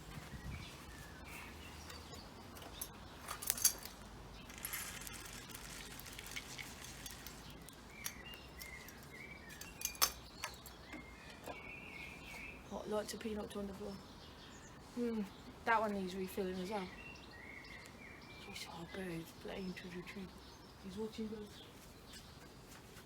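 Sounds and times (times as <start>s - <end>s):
small birds chirping: 0.0s - 23.0s
bird feeder clinking: 2.5s - 11.6s.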